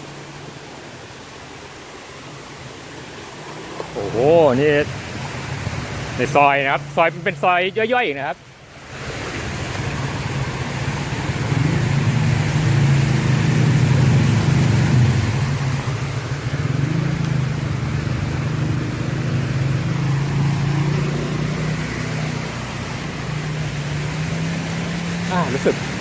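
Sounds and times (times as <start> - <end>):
vehicle engine running: 10.0 - 26.0.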